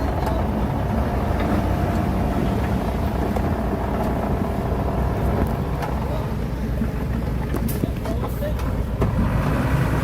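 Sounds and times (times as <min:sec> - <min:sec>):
diesel machinery engine running: 0:00.0 - 0:10.0.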